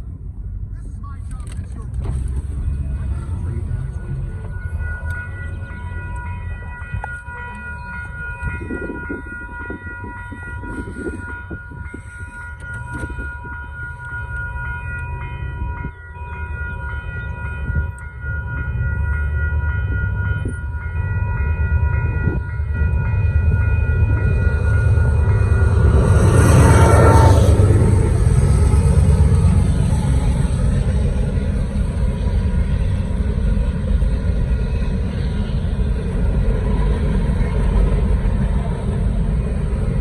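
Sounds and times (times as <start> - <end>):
train rumbling: 0.0 - 40.0.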